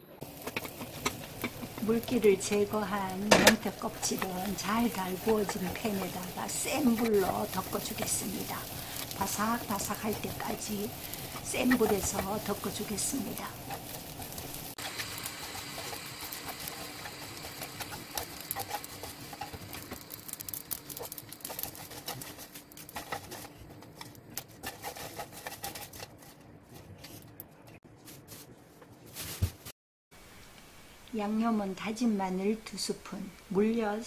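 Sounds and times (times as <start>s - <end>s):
fish skin sizzling in a pan: 0.2s - 26.1s
chopsticks scraping a pan: 0.3s - 27.3s.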